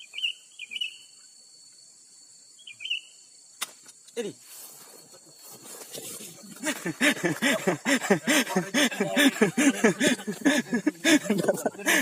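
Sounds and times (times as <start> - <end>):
man laughing: 6.4 - 12.0.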